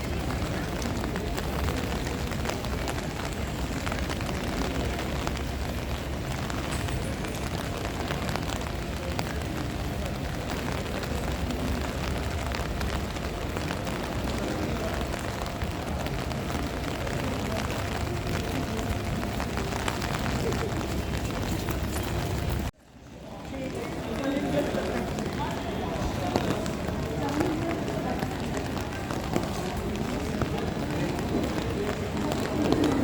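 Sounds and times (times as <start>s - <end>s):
rain crackling: 0.0s - 33.0s.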